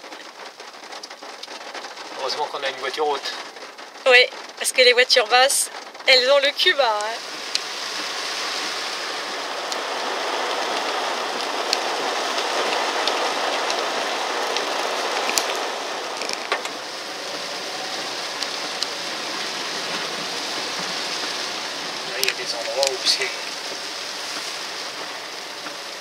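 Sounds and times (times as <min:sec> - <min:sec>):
heavy rain on car roof: 0:00.0 - 0:26.0
water washing under wheels: 0:00.0 - 0:26.0
single raindrop ticks: 0:09.7 - 0:09.9.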